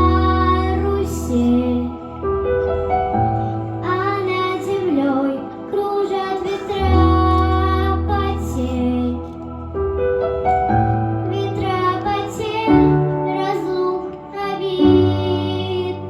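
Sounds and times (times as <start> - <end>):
young voice singing: 0.0 - 2.0, 3.8 - 9.3, 11.3 - 16.0
instrumental accompaniment: 0.0 - 16.0.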